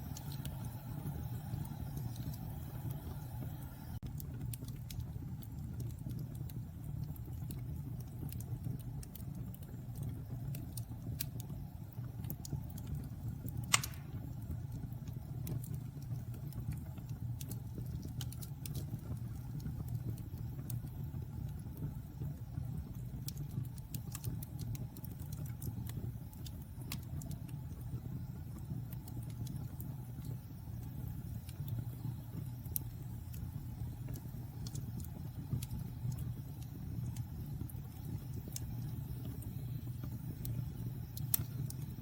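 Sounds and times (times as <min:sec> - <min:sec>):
wood fire crackling: 0:00.0 - 0:42.0
loud pop from fire: 0:13.6 - 0:14.3.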